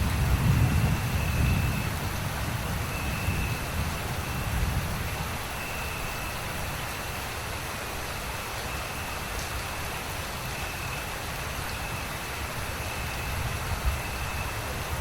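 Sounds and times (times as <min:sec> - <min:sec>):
low rumble of thunder: 0:00.0 - 0:05.4
steady rain falling: 0:00.0 - 0:15.0.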